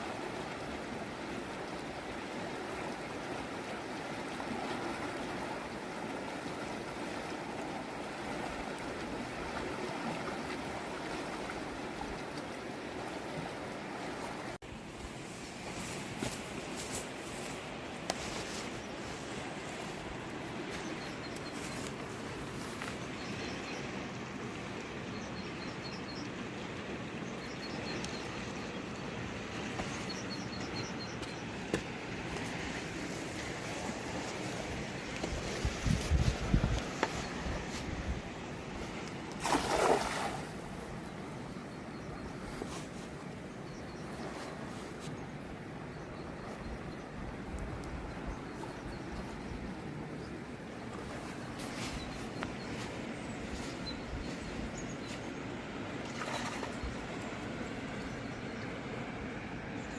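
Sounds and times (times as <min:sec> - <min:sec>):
fast river rushing: 0:29.2 - 0:41.0.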